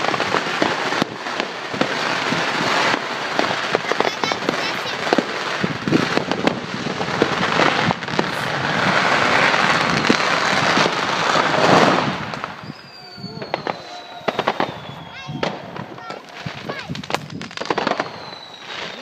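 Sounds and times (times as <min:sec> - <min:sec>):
firecracker bangs: 0:00.0 - 0:19.0
fireworks rushing hiss: 0:00.0 - 0:19.0
falling firework whistle: 0:05.0 - 0:19.0.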